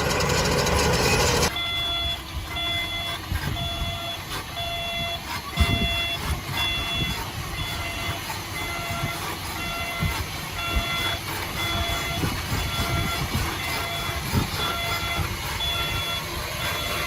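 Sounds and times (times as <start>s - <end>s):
diesel engine rumble: 0.0s - 17.0s
reversing alarm beeping: 0.0s - 17.0s.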